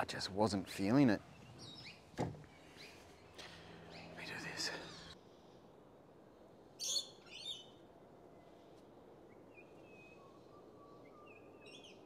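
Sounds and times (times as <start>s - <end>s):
faint birds chirping: 0.0s - 5.6s, 6.7s - 12.0s
faint whistled bird notes: 6.8s - 8.6s, 9.3s - 12.0s.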